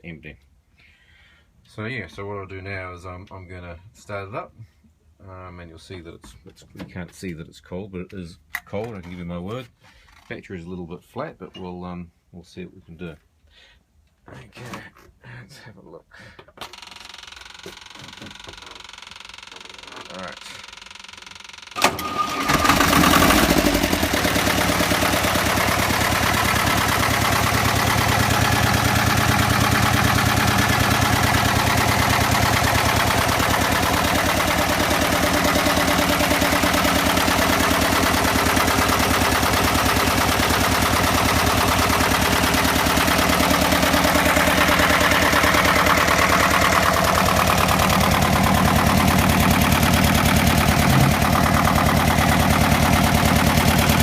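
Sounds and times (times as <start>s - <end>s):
diesel engine starting and idling: 21.7s - 54.0s.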